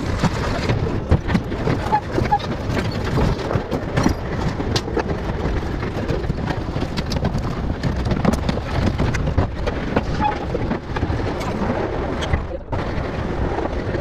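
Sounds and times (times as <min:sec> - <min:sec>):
heavy truck engine rumbling: 0:00.0 - 0:14.0.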